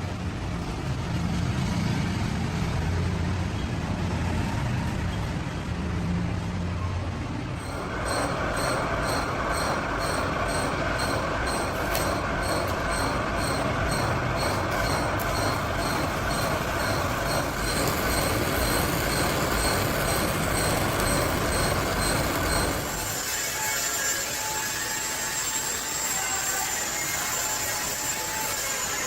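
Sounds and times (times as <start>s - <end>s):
regular light ticking: 7.6s - 22.9s
machinery grinding and rolling: 7.6s - 24.2s.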